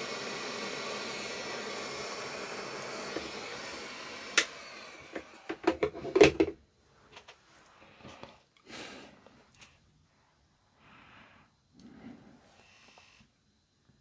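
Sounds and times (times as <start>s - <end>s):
hot air blower hissing: 0.0s - 6.5s.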